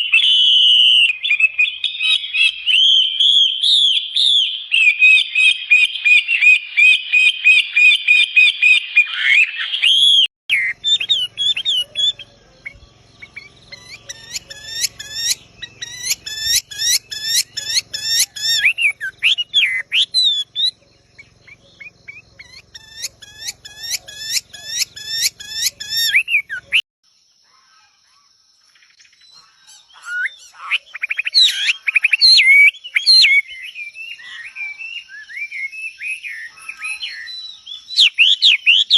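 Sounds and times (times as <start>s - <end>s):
bird call sweeping upward: 0.0s - 26.8s
bird trilling: 0.0s - 26.8s, 29.4s - 38.9s
bird chirping: 0.0s - 38.9s.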